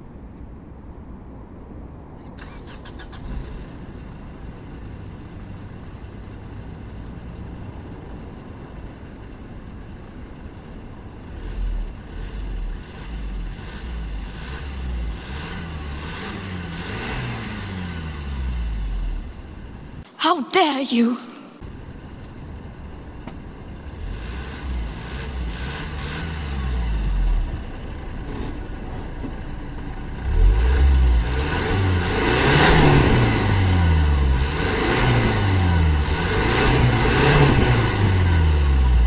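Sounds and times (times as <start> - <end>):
diesel car engine accelerating: 2.2 - 20.0, 21.6 - 39.0.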